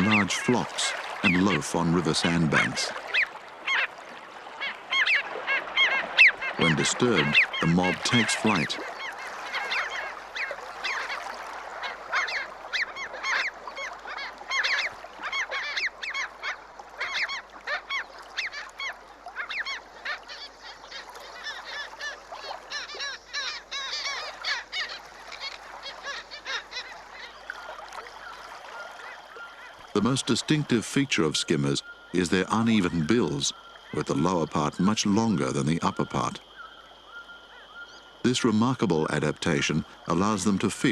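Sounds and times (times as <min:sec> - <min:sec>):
flock of birds calling: 0:00.0 - 0:40.9.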